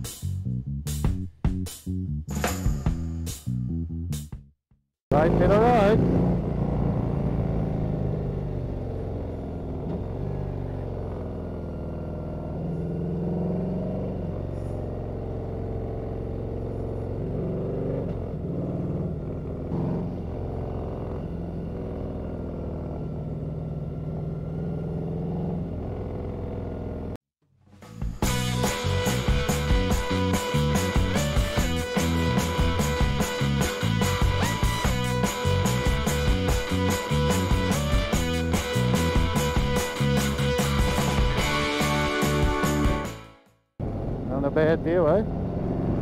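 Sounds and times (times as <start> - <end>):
motorcycle engine running: 5.1 - 27.2, 43.8 - 46.0.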